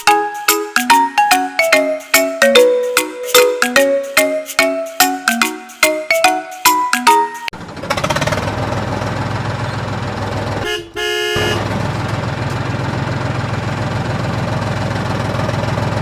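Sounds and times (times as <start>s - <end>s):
toy engine rumble: 7.6s - 10.7s
toy horn toot: 10.6s - 11.6s.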